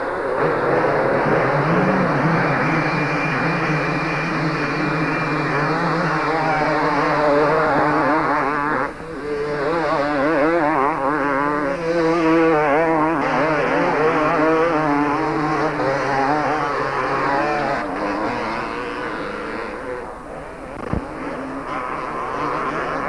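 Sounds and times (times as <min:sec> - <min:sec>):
motocross bikes racing: 0:00.0 - 0:23.0.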